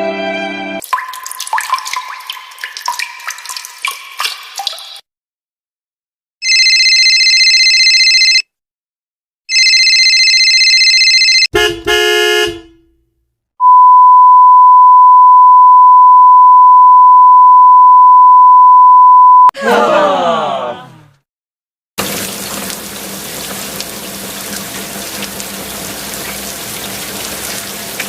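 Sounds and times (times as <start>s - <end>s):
loud steady censor bleep: 13.6s - 19.5s.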